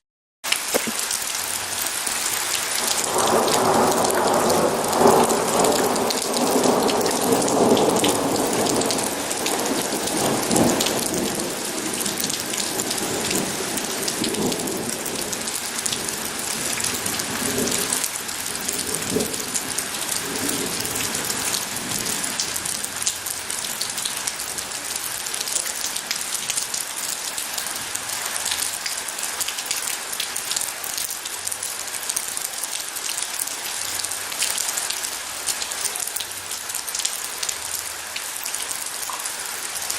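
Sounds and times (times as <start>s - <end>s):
heavy rain: 0.4s - 39.9s
low rumble of thunder: 2.8s - 23.2s.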